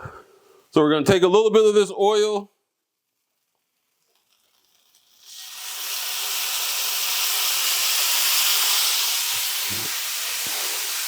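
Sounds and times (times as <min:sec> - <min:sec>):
oil sizzling in hot pan: 0:03.1 - 0:11.0.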